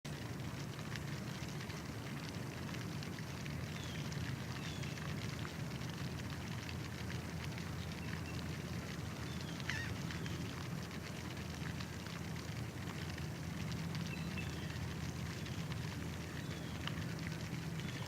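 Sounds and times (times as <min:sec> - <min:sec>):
low rumbling noise: 0:00.1 - 0:18.0
small scattered clicks: 0:00.2 - 0:18.0
faint bird chirps: 0:14.1 - 0:14.8.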